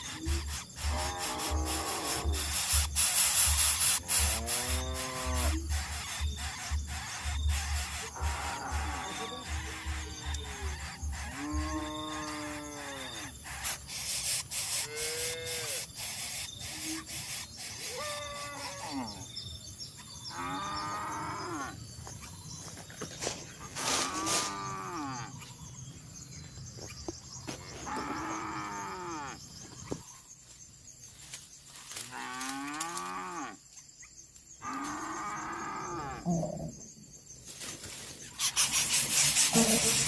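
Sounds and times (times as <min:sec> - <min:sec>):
moo-like animal calls: 0:11.3 - 0:13.3, 0:34.6 - 0:36.7.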